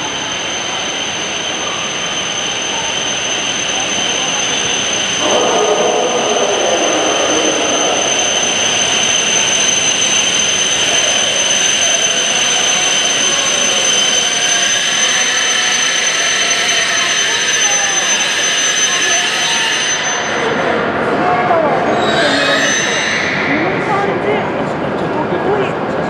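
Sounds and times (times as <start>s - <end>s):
steady high-pitched tone: 0.0s - 18.2s
train braking: 0.0s - 24.4s
whine falling in pitch: 5.2s - 10.4s.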